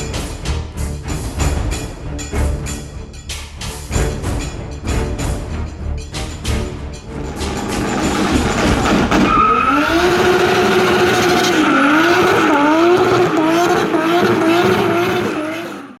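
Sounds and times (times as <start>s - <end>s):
car engine at high revs: 7.1s - 16.0s.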